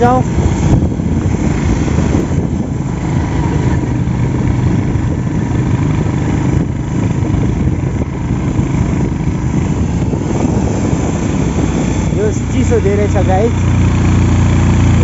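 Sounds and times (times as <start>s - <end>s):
engine running: 0.0s - 15.0s
wind noise on microphone: 0.0s - 15.0s.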